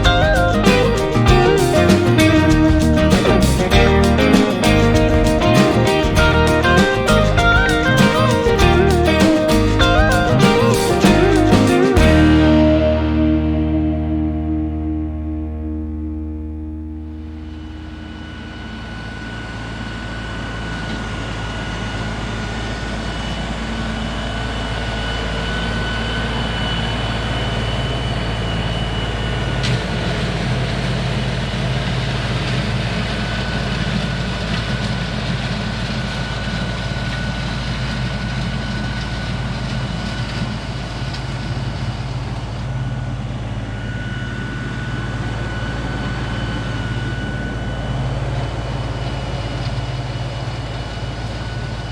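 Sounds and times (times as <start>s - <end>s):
tractor engine running: 0.0s - 14.6s
steady high whine: 0.0s - 51.9s.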